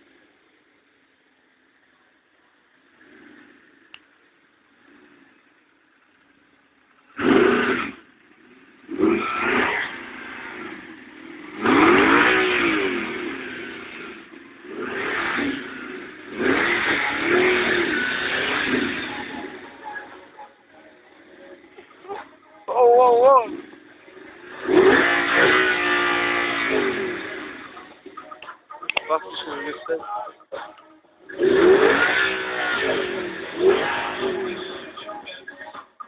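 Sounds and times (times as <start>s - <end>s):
car engine revving: 2.9s - 4.0s, 4.6s - 5.7s, 7.0s - 20.4s, 23.0s - 28.3s, 31.2s - 35.2s.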